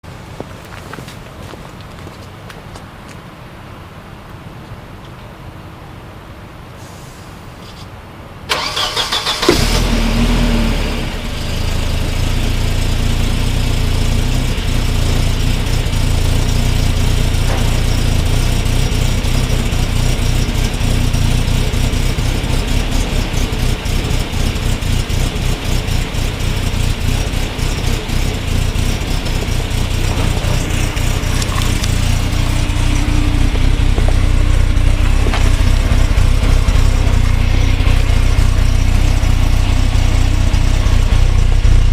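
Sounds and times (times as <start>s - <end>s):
car engine idling: 8.5s - 41.9s.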